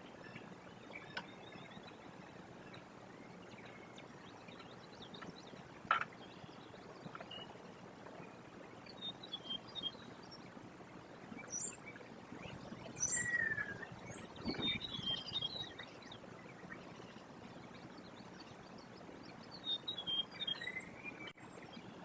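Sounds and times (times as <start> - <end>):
steady outdoor hiss: 0.0 - 22.0
high bird chirps: 12.4 - 15.8.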